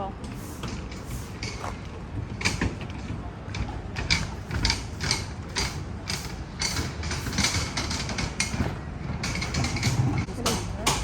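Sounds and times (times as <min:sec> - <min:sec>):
footsteps on pavement: 0:01.1 - 0:04.5.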